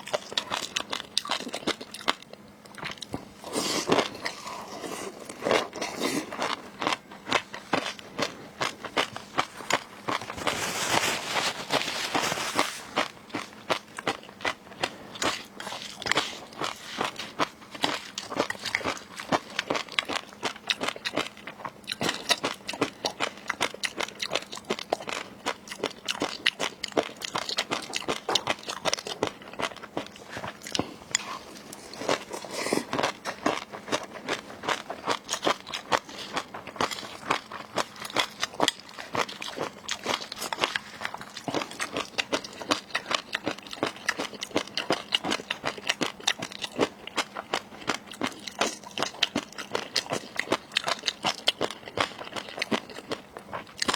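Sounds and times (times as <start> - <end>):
crunching and chewing food: 0.0 - 53.9.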